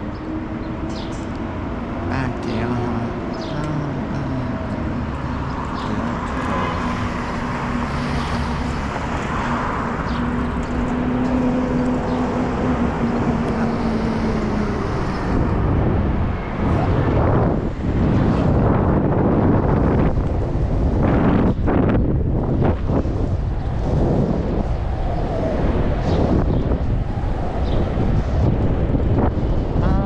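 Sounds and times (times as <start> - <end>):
vehicle engine humming: 0.0 - 22.7
road traffic noise: 0.0 - 30.0.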